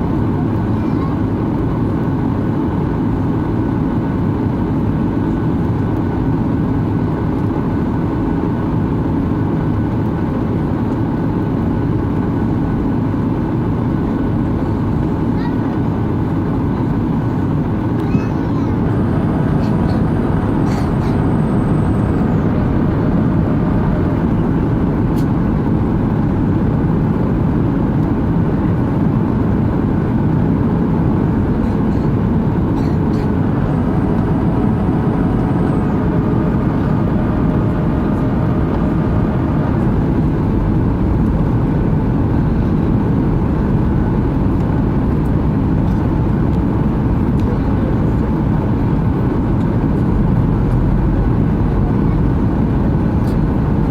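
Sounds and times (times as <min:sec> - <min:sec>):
jet engine cabin rumble: 0:00.0 - 0:53.9
faint whining tones: 0:16.8 - 0:25.8, 0:31.4 - 0:43.9
rushing air: 0:18.7 - 0:26.6, 0:30.9 - 0:44.4.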